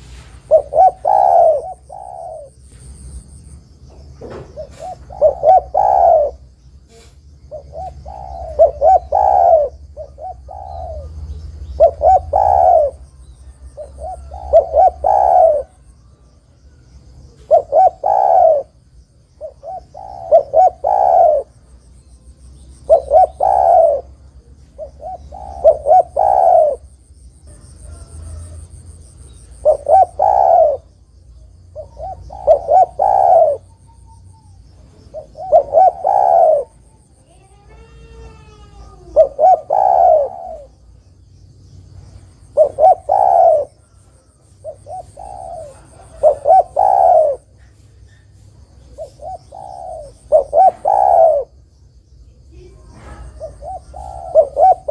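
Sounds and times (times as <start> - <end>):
dove cooing: 0.0 - 3.2, 4.2 - 21.7, 22.6 - 41.1, 42.4 - 51.6, 52.4 - 54.9
faint high chirps: 19.4 - 41.3.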